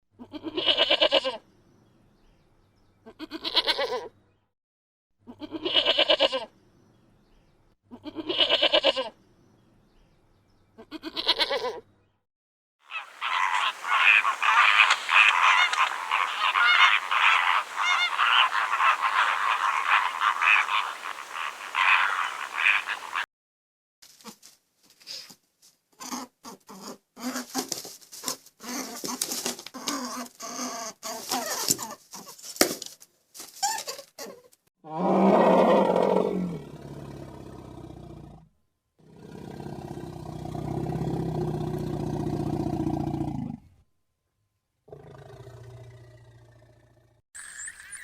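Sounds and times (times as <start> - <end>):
farm animal drawn-out calls: 12.9 - 23.2
chorus of animals calling: 12.9 - 23.3.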